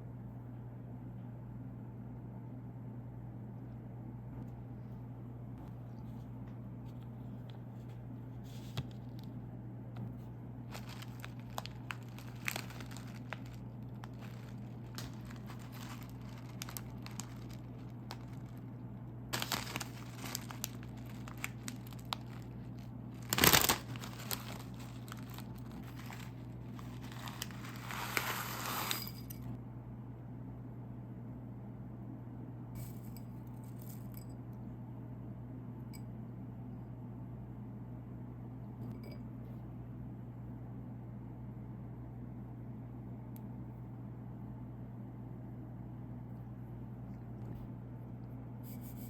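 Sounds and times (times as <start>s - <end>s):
steady low hum: 0.0s - 49.0s
wrapper ripping open: 10.7s - 18.6s, 19.4s - 29.3s
plastic wrapper crinkling: 10.7s - 29.4s.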